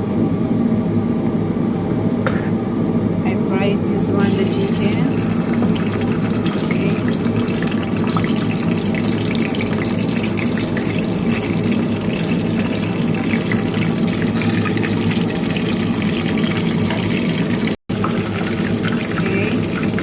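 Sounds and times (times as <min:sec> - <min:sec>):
low hum: 0:00.0 - 0:20.0
chicken frying in hot oil: 0:04.2 - 0:20.0.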